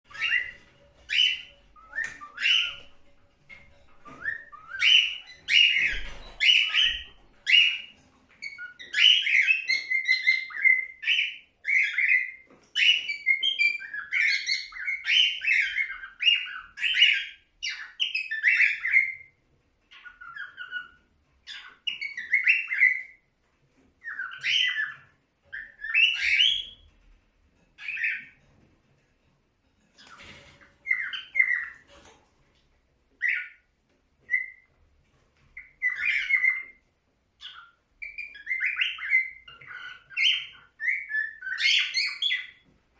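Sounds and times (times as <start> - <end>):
cockatiel whistling: 0.1 - 2.9, 4.0 - 19.3, 19.9 - 23.2, 24.0 - 26.8, 34.3 - 34.7, 35.6 - 36.8, 37.4 - 42.6.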